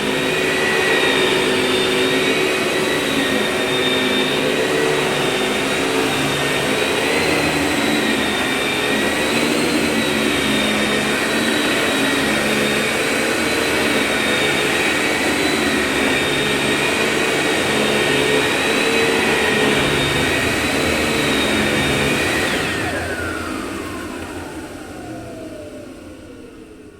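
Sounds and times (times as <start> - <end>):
vacuum cleaner motor whining: 0.0 - 26.9.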